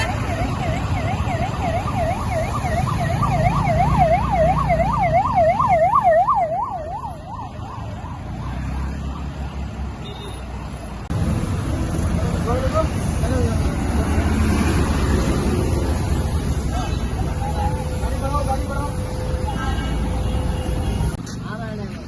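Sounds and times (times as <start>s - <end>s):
police siren yelping: 0.0s - 9.4s
road traffic rumble: 0.0s - 22.0s.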